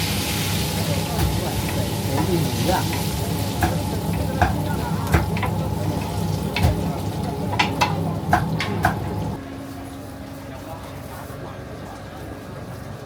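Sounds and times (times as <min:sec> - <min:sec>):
frying hiss: 0:00.0 - 0:09.4
low machine hum: 0:00.0 - 0:13.0
utensils clinking on cookware: 0:01.2 - 0:09.3.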